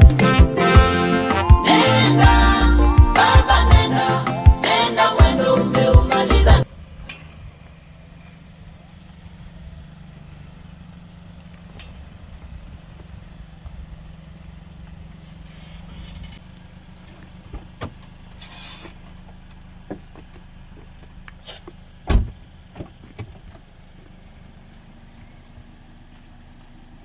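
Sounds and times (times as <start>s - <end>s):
car engine humming: 0.0s - 27.0s
loud thump: 22.1s - 22.9s.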